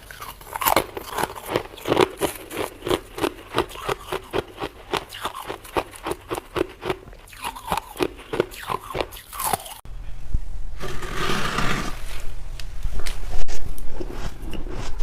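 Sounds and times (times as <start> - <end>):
crunching and scraping noise: 0.0 - 9.8, 10.8 - 15.0
frost being chewed crunching: 0.0 - 9.8.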